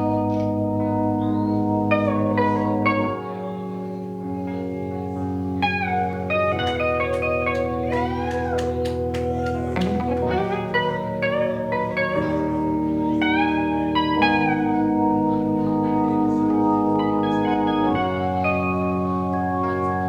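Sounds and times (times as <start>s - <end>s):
electric guitar bending notes: 0.0s - 20.0s
live rock band playing: 5.6s - 15.6s.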